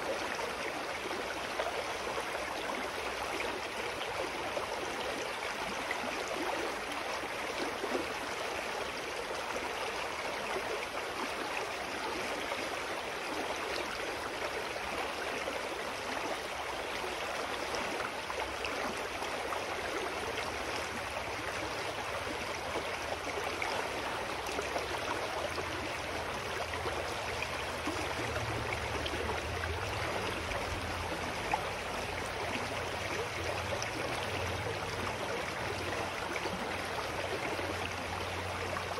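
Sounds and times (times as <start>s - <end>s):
mountain stream flowing: 0.0s - 38.9s.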